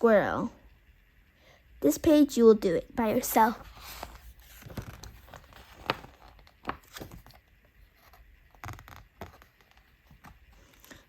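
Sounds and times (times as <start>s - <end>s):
paper pages rustling: 3.5s - 11.0s.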